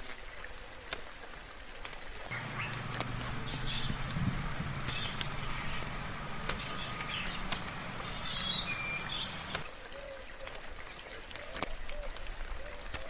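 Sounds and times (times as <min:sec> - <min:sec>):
light rain hiss: 0:00.0 - 0:13.0
sharp drips: 0:02.2 - 0:09.7
birds chirping: 0:02.3 - 0:09.7
low hum: 0:02.3 - 0:09.7.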